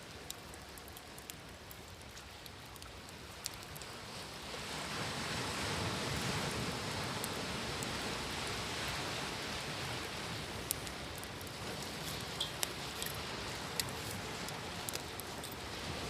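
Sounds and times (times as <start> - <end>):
campfire crackling and popping: 0.0 - 16.0
ocean waves: 4.0 - 16.0.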